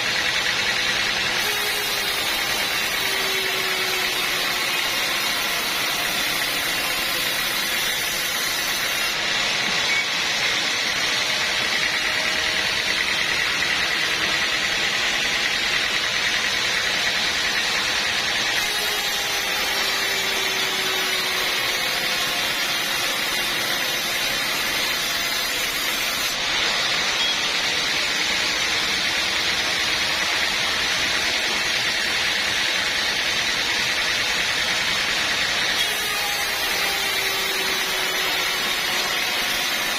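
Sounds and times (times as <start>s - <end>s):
sawmill saw whirring: 0.0s - 39.9s.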